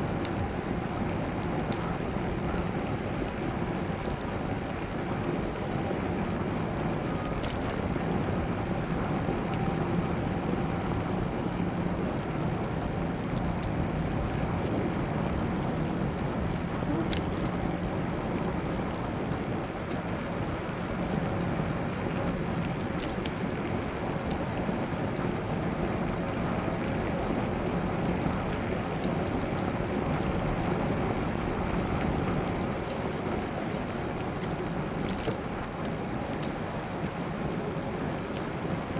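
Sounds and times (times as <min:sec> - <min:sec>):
bike rolling noise: 0:00.0 - 0:38.9
faint ticks: 0:00.0 - 0:38.9.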